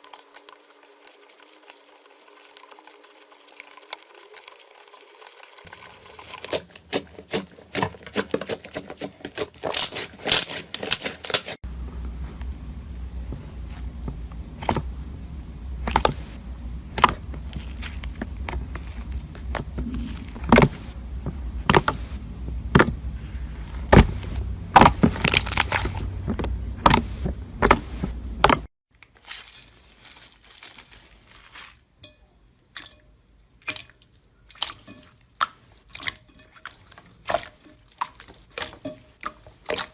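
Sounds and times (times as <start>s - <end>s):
crunchy slime being squeezed: 9.4s - 11.6s, 23.7s - 27.8s
low hum: 11.6s - 28.7s.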